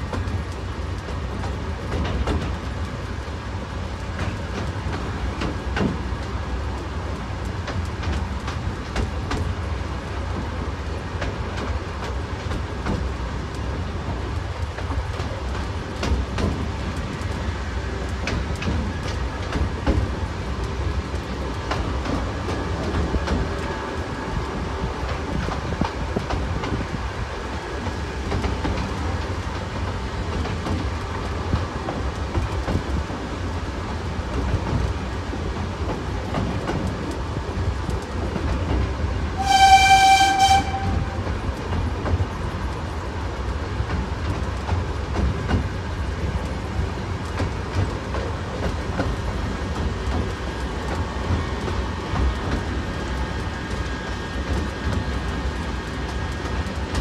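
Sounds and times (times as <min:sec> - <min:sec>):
miniature train rumbling: 0:00.0 - 0:57.0
wheels clattering on rail joints: 0:00.0 - 0:57.0
locomotive whistle blast: 0:39.4 - 0:41.2.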